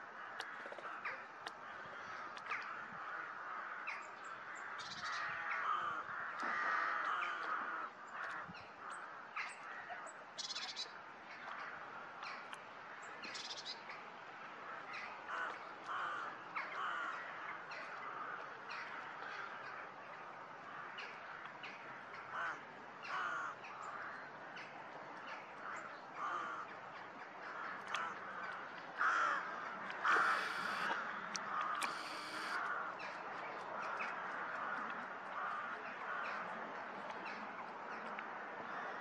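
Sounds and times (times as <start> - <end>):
birds calling: 27.8 - 33.2
faint steady hiss: 29.6 - 32.7.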